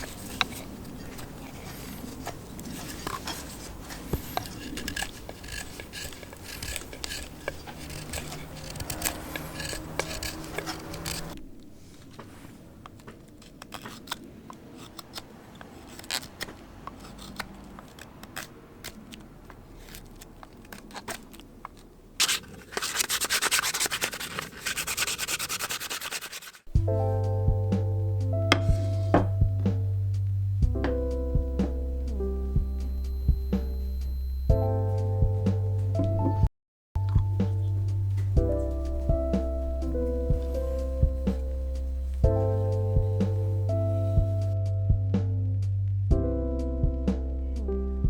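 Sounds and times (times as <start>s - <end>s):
rubbing and scraping on wood lathe: 0.0s - 11.4s, 22.2s - 26.8s.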